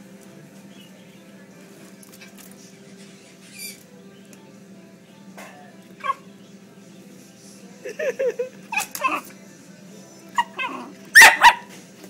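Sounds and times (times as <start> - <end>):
dog yelping: 6.0 - 6.2, 8.7 - 9.3, 10.3 - 11.7
dog whining and yipping: 8.7 - 9.3, 10.4 - 11.7.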